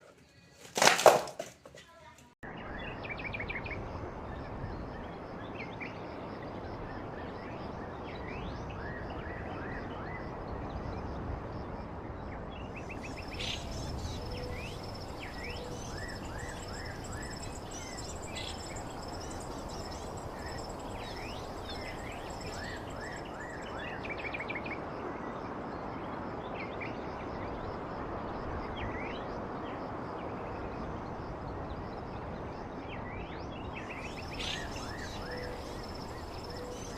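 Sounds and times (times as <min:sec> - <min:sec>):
outdoor background hiss: 0:00.0 - 0:36.9
small birds chirping: 0:12.8 - 0:24.3, 0:33.8 - 0:36.9.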